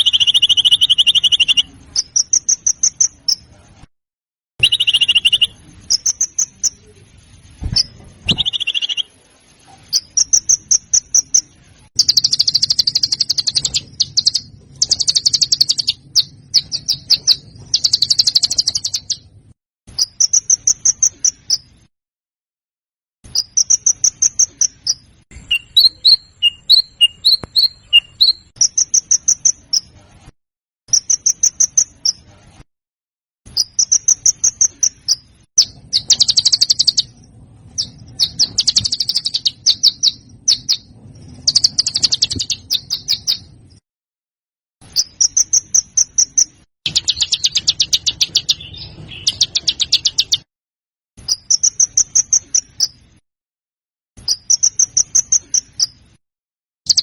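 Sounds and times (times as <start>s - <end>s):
songbird chattering trills: 0.0s - 3.5s, 4.6s - 7.0s, 7.8s - 9.2s, 9.9s - 19.2s, 23.4s - 29.9s, 33.6s - 37.1s, 45.0s - 50.4s.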